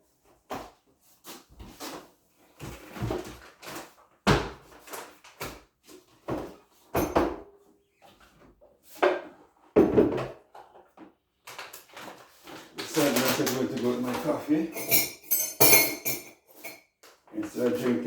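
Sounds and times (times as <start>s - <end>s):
kitchen items knocking: 9.8s - 10.4s, 12.8s - 16.7s.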